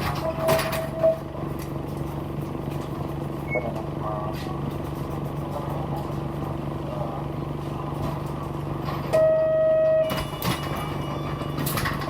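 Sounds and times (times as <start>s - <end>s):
bus engine humming: 0.0s - 12.0s
loud electronic tone: 9.2s - 10.2s.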